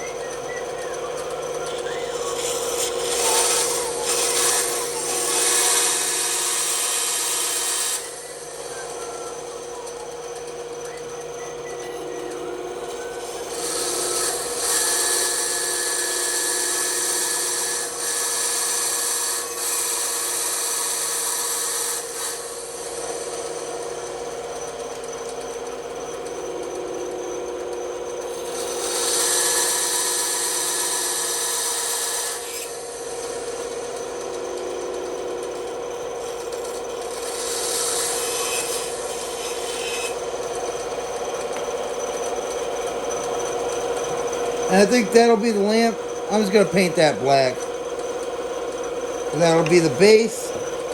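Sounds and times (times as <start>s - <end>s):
bandsaw running: 0.0s - 50.9s
bandsaw blade cutting wood: 1.6s - 9.8s, 12.1s - 24.3s, 26.2s - 50.9s.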